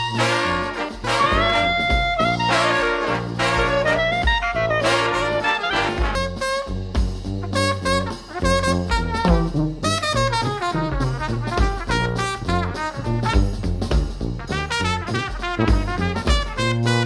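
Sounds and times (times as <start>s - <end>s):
swing jazz with brass: 0.0s - 17.0s.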